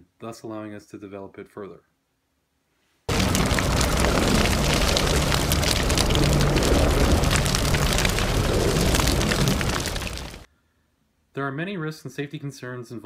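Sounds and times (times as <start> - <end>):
large fire crackling: 3.1 - 10.5.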